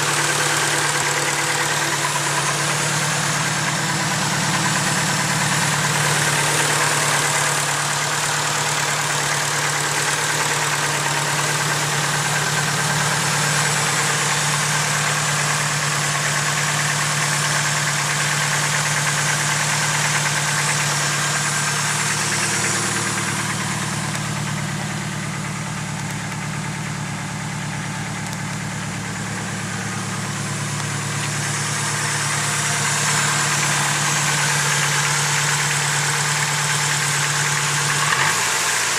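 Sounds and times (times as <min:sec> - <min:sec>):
car engine idling: 0:00.0 - 0:38.9
engine lifter ticking: 0:00.0 - 0:38.9.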